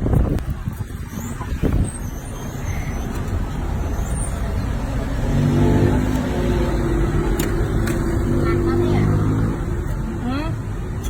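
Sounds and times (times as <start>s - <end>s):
vehicle engine passing: 3.0s - 10.2s.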